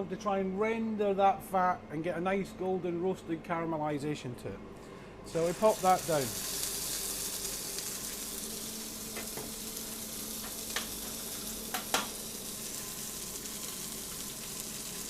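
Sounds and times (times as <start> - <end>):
meat sizzling in a frying pan: 5.3 - 15.0.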